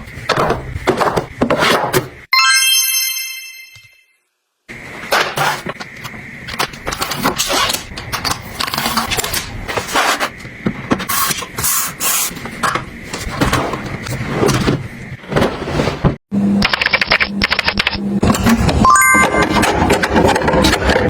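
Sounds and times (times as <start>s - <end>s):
objects scraping and rustling: 5.0s - 16.2s.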